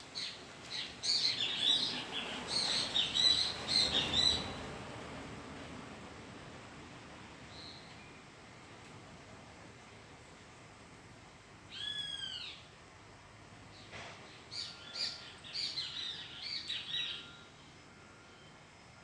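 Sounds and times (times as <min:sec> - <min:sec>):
bird calling: 0:00.2 - 0:04.6, 0:11.7 - 0:12.6
bird chirping: 0:00.2 - 0:04.6, 0:14.5 - 0:17.5.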